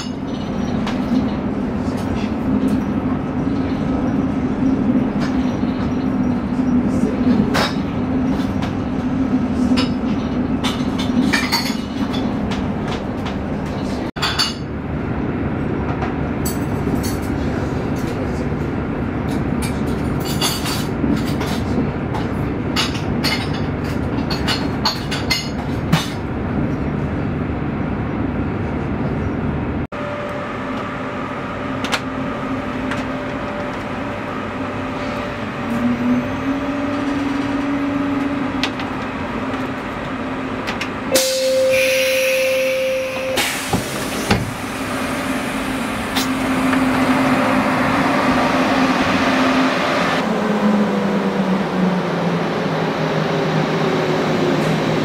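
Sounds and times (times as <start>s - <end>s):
train cabin rumble: 0.0s - 29.8s, 30.6s - 51.1s
faint train whine: 30.0s - 55.0s.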